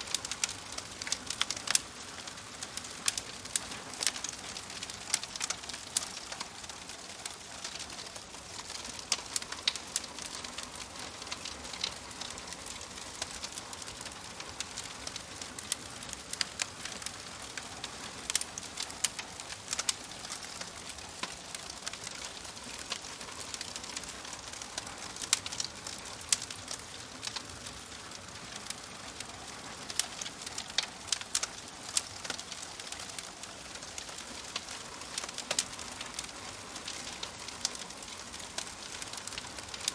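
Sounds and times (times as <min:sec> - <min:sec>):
fire hissing: 0:00.0 - 0:39.9
fire popping and snapping: 0:00.0 - 0:39.9.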